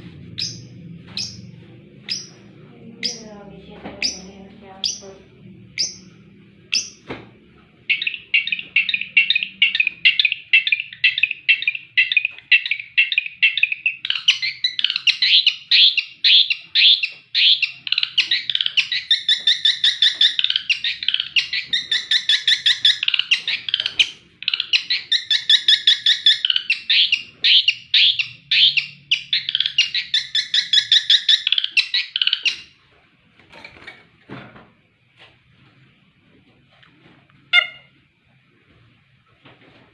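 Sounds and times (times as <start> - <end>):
bird singing rapid notes: 0.3 - 3.4, 4.0 - 7.0, 7.8 - 32.8.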